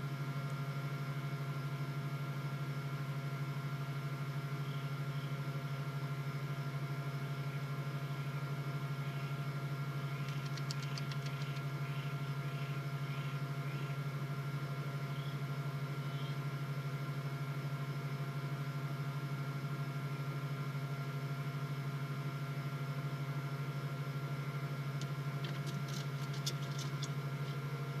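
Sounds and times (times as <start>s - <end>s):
electrical hum: 0.0s - 21.6s, 22.2s - 28.0s
faint scratchy clicks: 10.2s - 11.6s.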